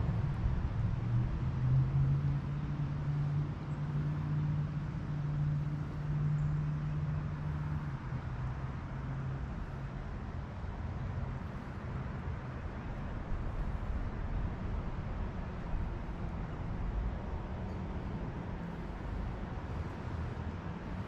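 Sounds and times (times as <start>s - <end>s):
vehicle engine hum: 0.0s - 21.0s
low rushing background: 10.6s - 21.0s.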